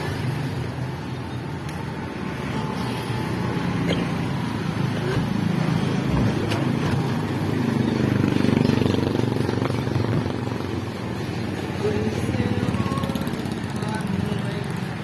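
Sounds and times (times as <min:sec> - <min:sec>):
street traffic: 0:00.0 - 0:15.0
motorcycle engine running: 0:04.9 - 0:15.0.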